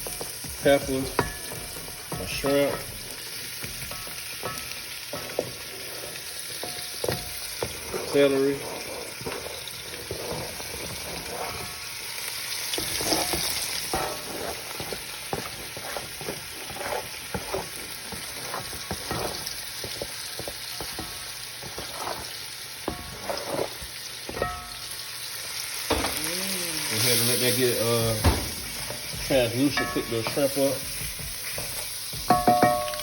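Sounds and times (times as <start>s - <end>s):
utensil scraping pan: 0.0s - 25.0s, 26.9s - 33.0s
vegetables sizzling in oil: 0.0s - 33.0s.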